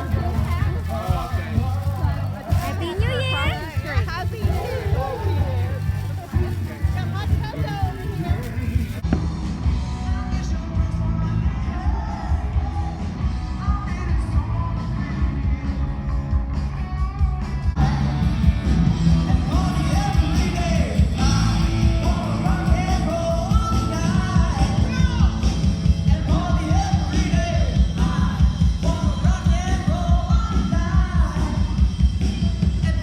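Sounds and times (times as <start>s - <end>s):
heavy bass beat: 0.0s - 15.6s
loud rock music: 0.0s - 33.0s.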